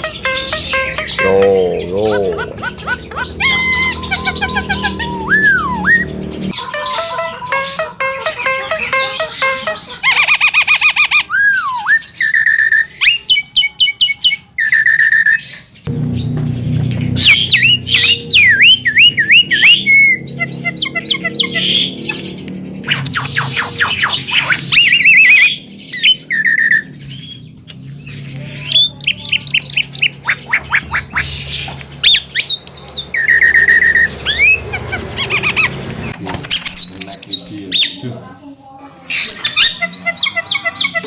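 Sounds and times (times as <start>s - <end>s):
myna chattering and singing: 0.0s - 10.4s, 27.8s - 31.8s, 37.0s - 41.0s.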